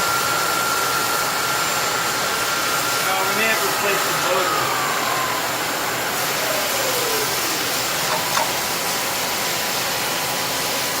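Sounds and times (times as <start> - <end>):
machining center hissing: 2.7 - 11.0.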